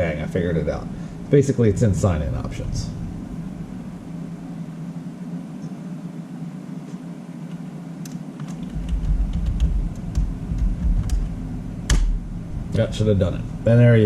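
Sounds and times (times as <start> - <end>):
steady low hum: 0.0 - 14.0
deep rumble: 1.8 - 4.1.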